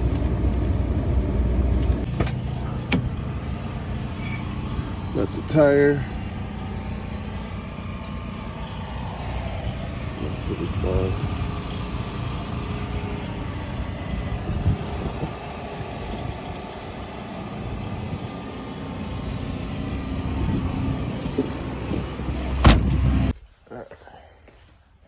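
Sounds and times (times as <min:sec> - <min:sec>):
motor vehicle rumble: 0:00.0 - 0:23.4
sharp thump: 0:22.6 - 0:23.2.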